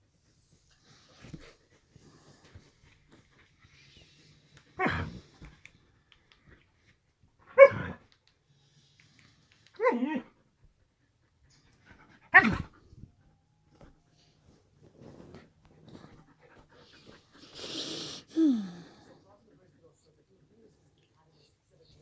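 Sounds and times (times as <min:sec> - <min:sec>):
dog barking: 0:07.6 - 0:08.0, 0:12.3 - 0:12.7.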